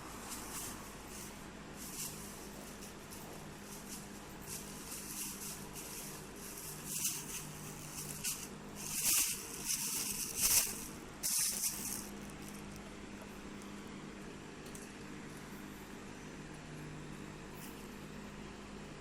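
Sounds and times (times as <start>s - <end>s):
plastic rustling and crinkling: 0.1s - 13.0s.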